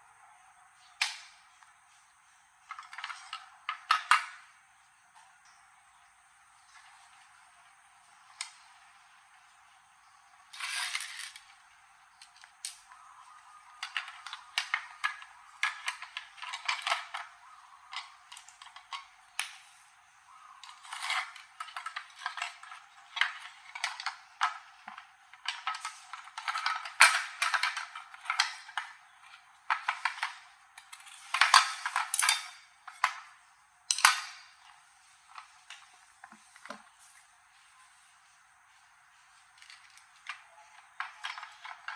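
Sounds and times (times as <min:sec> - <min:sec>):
metal parts and tools clinking: 0:10.4 - 0:20.0, 0:20.6 - 0:38.0, 0:39.3 - 0:41.9.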